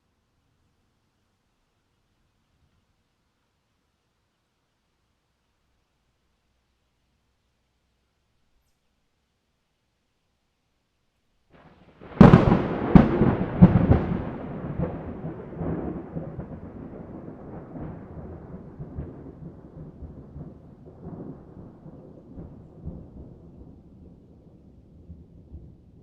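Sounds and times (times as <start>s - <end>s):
thunder cracking and rumbling: 11.6s - 26.0s.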